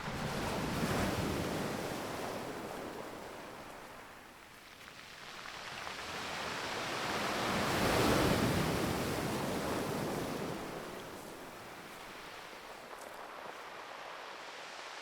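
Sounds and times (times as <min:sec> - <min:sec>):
sea waves washing in: 0:05.8 - 0:15.0.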